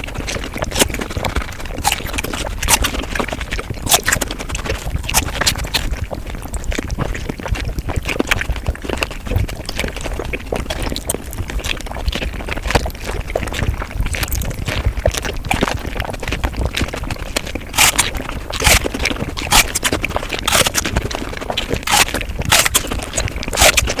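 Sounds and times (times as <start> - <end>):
sped-up eating sounds: 0.0 - 24.0
sharp crisp crunches: 1.7 - 3.0, 3.8 - 4.2, 5.0 - 5.8, 17.7 - 24.0.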